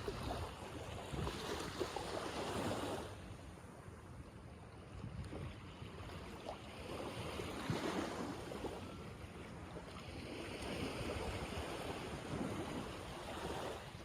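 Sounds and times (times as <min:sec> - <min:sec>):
wind on microphone: 0:00.0 - 0:03.1, 0:04.9 - 0:09.2, 0:09.9 - 0:14.0.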